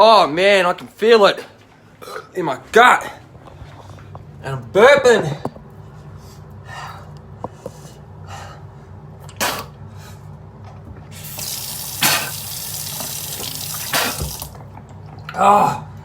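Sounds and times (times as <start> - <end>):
water running from tap: 11.1 - 14.6.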